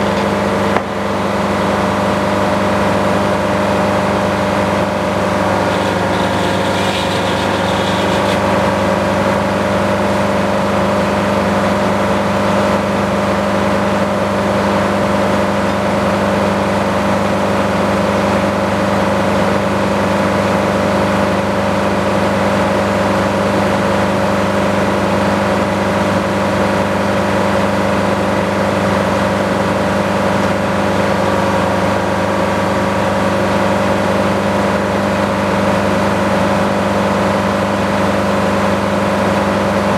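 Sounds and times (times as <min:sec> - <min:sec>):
sawmill engine running: 0:00.0 - 0:12.6.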